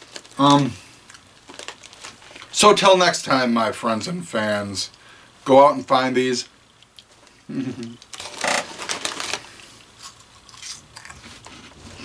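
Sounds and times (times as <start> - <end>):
person humming: 7.5 - 8.0
snack crunching: 7.8 - 11.8.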